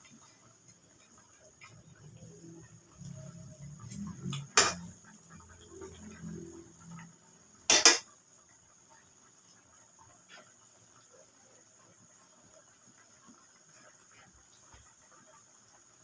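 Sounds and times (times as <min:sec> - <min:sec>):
metal utensil clanking on cookware: 0:04.3 - 0:05.0, 0:07.7 - 0:08.1.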